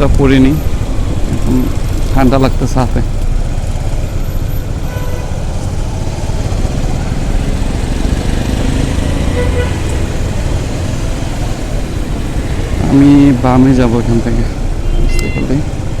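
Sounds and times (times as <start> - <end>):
motorcycle engine and wind rumble: 0.0 - 16.0
faint vehicle horns: 4.8 - 5.6, 9.3 - 10.0, 14.8 - 15.6.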